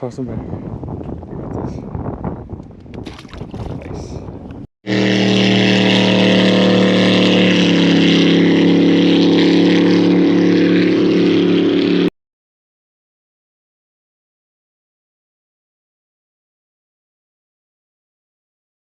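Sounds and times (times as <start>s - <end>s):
boat motor running: 3.2s - 12.1s.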